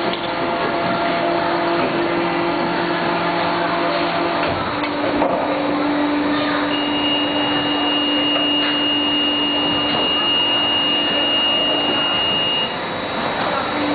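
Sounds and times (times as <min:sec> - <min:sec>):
machinery humming: 0:00.0 - 0:13.9
thin high steady tone: 0:06.5 - 0:12.8.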